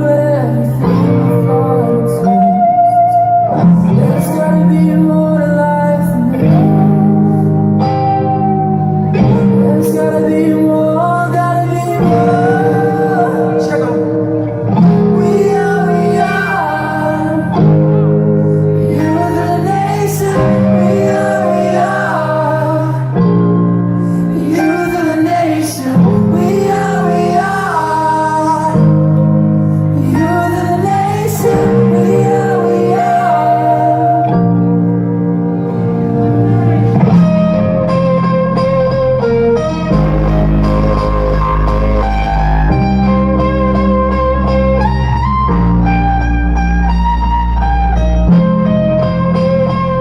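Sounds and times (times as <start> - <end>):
held bass chords: 0.0 - 50.0
rock band playing: 6.2 - 10.9, 12.0 - 50.0
voices singing a melody: 9.1 - 23.6, 24.2 - 29.2, 29.9 - 35.0.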